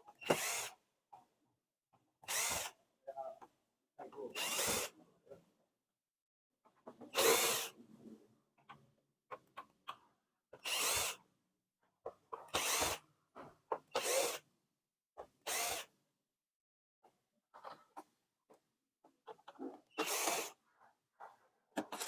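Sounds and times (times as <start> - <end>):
electric screwdriver whirring: 0.2 - 0.8, 2.3 - 2.8, 4.4 - 4.9, 7.2 - 7.7, 10.6 - 11.2, 12.5 - 13.0, 14.0 - 14.4, 15.5 - 15.9, 20.0 - 20.6
clicks of screws and plastic parts: 21.8 - 22.0.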